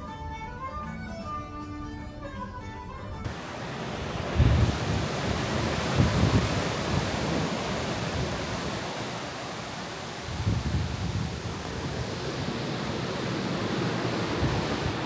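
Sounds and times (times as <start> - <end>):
sea rushing: 3.3 - 15.0
wind buffeting microphone: 3.3 - 15.0.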